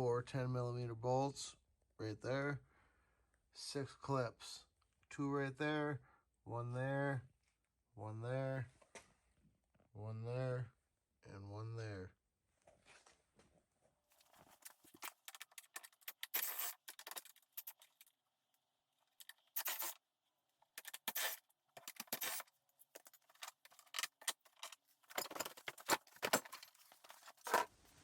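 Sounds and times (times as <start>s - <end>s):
metallic tool clinks and scrapes: 15.0s - 18.0s, 20.8s - 27.7s.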